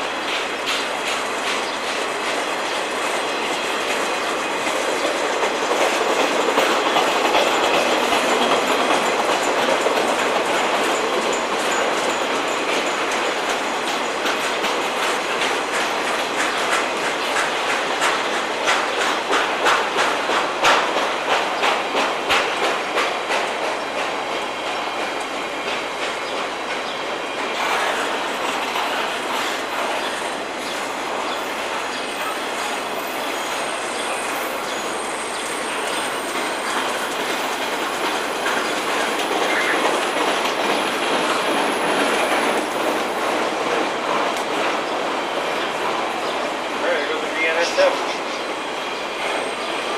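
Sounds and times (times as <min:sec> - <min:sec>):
freight train cars rolling: 0:00.0 - 0:49.9
wheels clicking over rail joints: 0:00.1 - 0:46.4
high wheel squeals: 0:31.4 - 0:37.1.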